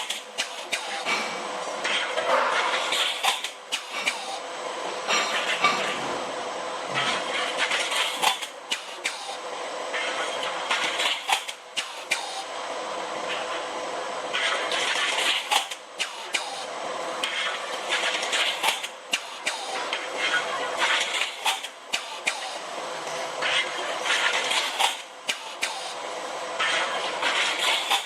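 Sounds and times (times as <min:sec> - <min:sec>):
machine hissing: 0:14.3 - 0:28.0.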